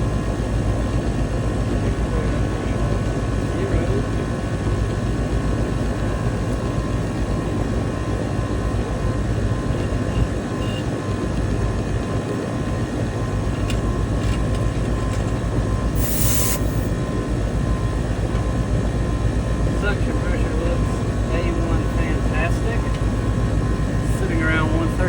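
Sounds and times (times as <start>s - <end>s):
condenser fan noise: 0.0s - 25.0s
compressor hum: 15.6s - 25.0s
brief hiss: 16.0s - 16.9s.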